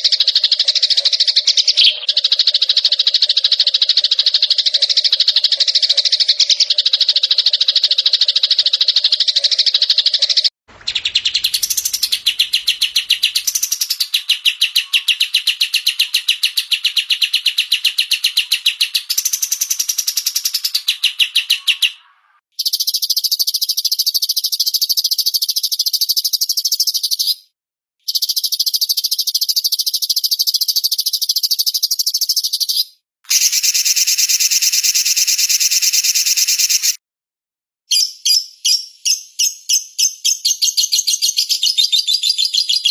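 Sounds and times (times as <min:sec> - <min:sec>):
songbirds chirping: 0:10.3 - 0:19.3, 0:20.4 - 0:22.4.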